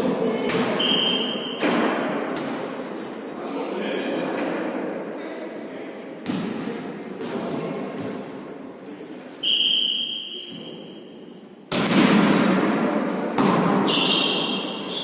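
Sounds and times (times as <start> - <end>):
loud ball strikes echoing: 0.4 - 0.8, 6.2 - 8.3, 11.7 - 14.7.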